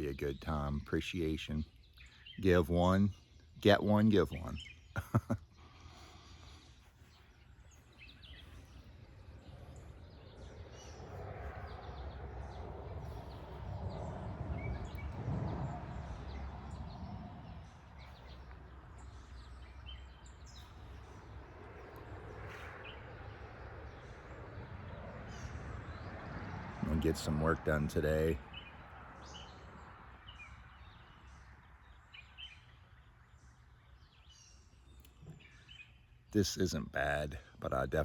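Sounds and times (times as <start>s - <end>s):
broad rumbling noise: 8.9s - 19.3s
bird chirps: 27.2s - 38.0s.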